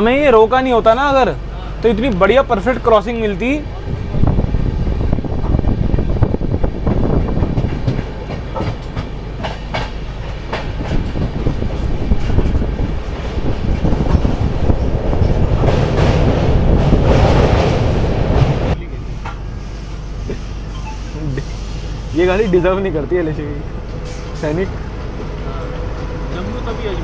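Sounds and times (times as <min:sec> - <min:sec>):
train wheels rumbling on rails: 0:00.0 - 0:27.0
wheels clicking over rail joints: 0:06.9 - 0:19.4.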